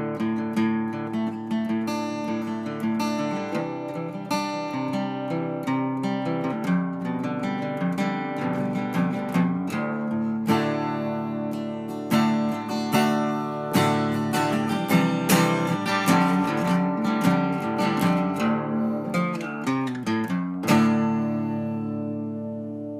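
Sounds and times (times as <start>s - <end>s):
acoustic guitar strummed and plucked: 0.0s - 22.9s.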